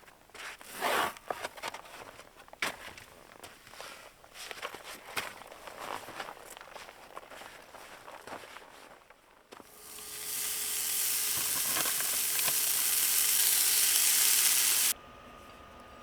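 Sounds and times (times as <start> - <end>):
food sizzling in a frying pan: 9.6 - 15.0.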